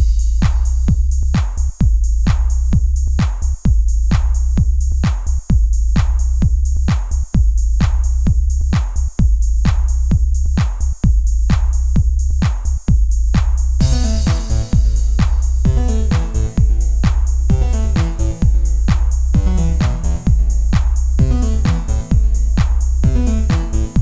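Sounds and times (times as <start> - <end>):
deep sustained bass: 0.0 - 5.0, 13.2 - 24.0
drum machine beat: 0.0 - 24.0.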